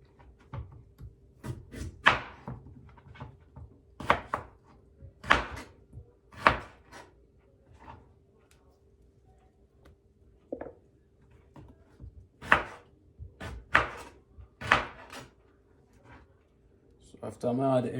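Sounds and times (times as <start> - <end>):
kitchen knocks and clatters: 10.5 - 10.9.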